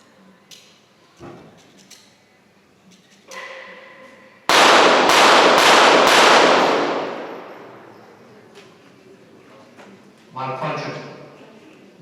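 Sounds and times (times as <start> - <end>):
pistol shots echoing in a hall: 3.3 - 8.4.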